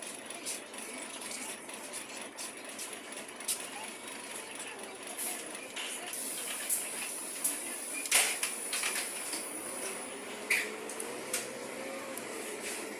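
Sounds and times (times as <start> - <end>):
bus cabin hiss: 6.1 - 10.8.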